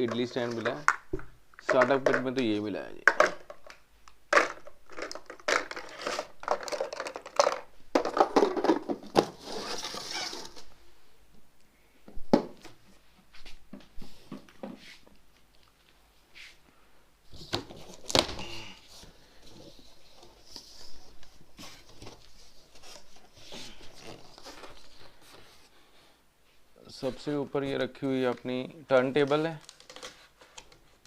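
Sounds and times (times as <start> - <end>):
plastic and cardboard crinkling: 3.1 - 10.7, 17.3 - 25.7, 27.0 - 31.0
items knocking when set down: 4.3 - 9.4.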